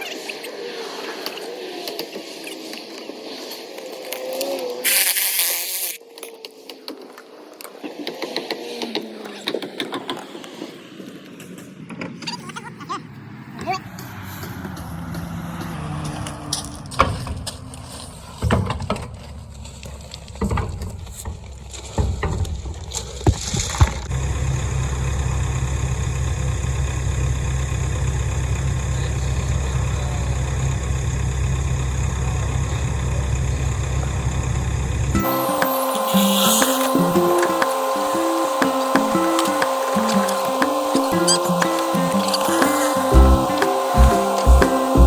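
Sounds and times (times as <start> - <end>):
excavator diesel engine running: 13.0 - 21.7, 24.0 - 45.0.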